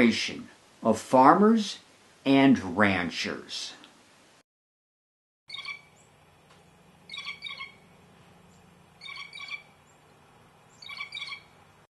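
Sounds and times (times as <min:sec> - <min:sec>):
bird calling bright notes: 0:05.5 - 0:06.2, 0:07.0 - 0:11.6
faint low hum: 0:05.5 - 0:11.9.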